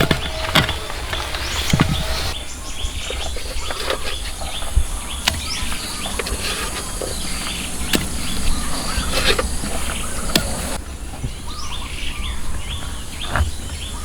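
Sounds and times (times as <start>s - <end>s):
birds chirping: 0.0s - 14.0s
sharp knocks: 5.2s - 10.8s.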